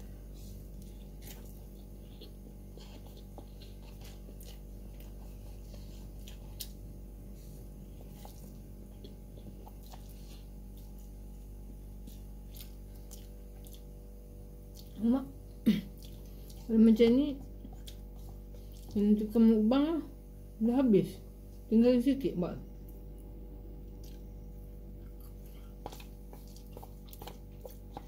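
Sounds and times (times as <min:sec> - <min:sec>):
steady low hum: 0:00.0 - 0:28.0
wet chewing noises: 0:00.4 - 0:14.0, 0:14.6 - 0:15.0, 0:15.9 - 0:19.4, 0:22.8 - 0:28.0.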